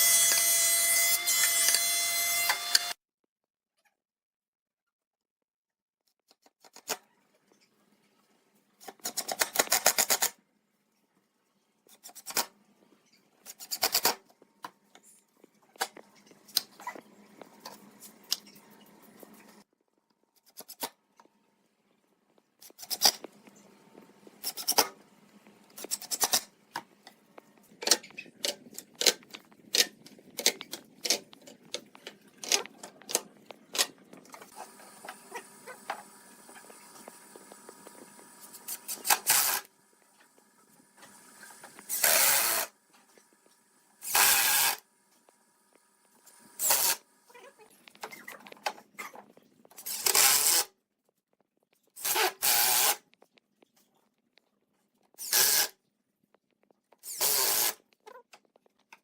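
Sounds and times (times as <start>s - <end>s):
clicks taps and scraping on wood: 25.7s - 34.5s.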